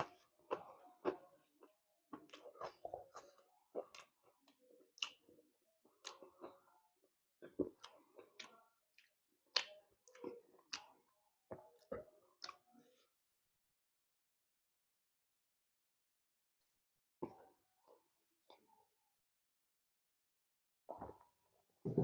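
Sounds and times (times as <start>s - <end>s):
wet chewing mouth sounds: 0.0s - 5.2s, 5.8s - 6.7s, 7.4s - 12.6s.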